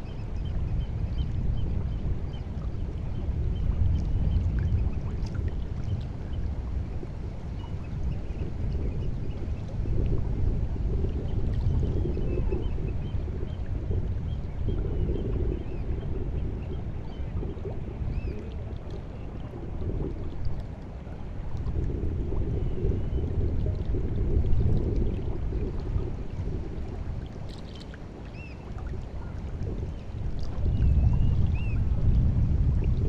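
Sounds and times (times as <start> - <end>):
sea water lapping at shore: 2.3 - 33.0.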